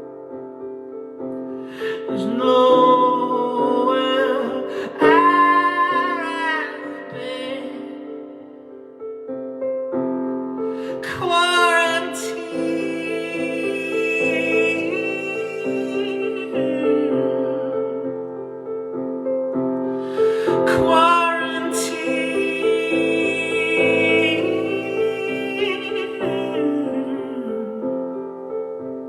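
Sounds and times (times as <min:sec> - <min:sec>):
piano chords: 0:00.0 - 0:29.0
person singing long notes: 0:01.8 - 0:08.4, 0:10.9 - 0:18.1, 0:20.1 - 0:28.2.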